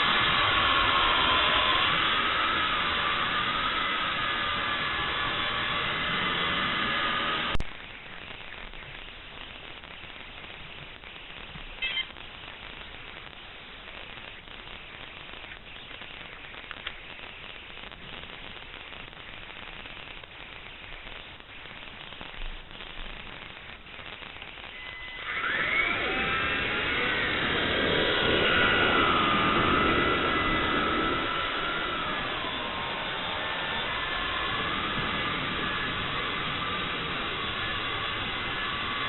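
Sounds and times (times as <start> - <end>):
toy helicopter motor whining: 0.0 - 7.6, 24.6 - 39.0
steady hiss: 0.0 - 39.0.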